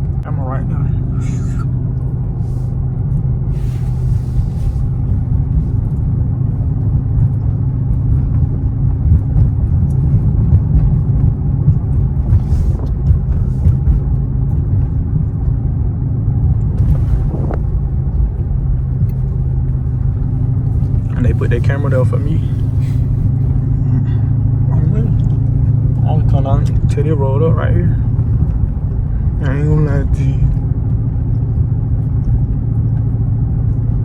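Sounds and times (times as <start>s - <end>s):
vee eight engine rumbling: 0.0s - 34.0s.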